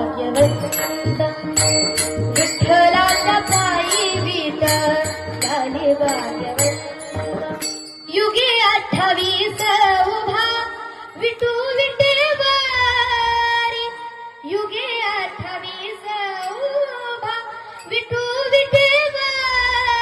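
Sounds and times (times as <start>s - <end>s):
drum and percussion beat: 0.0s - 10.6s
woman singing devotional song: 0.0s - 20.0s.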